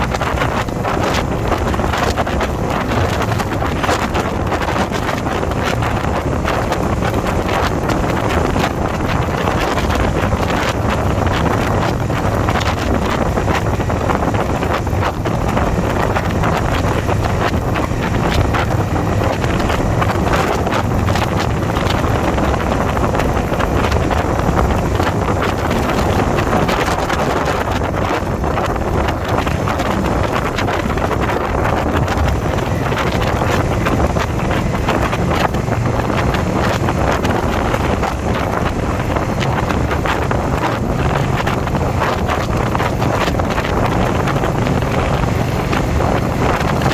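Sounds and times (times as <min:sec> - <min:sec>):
motorcycle engine running: 0:00.0 - 0:46.9
wind rushing over microphone: 0:00.0 - 0:46.9.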